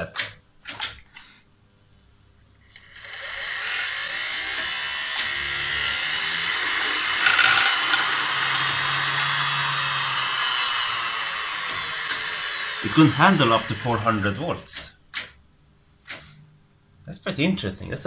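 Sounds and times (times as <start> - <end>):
sewing machine motor whirring: 2.7 - 14.7.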